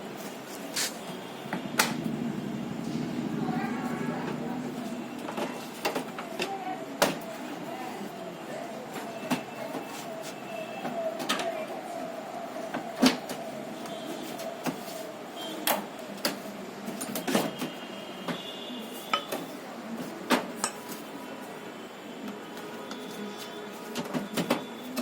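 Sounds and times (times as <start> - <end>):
steady hum: 1.0 - 6.4.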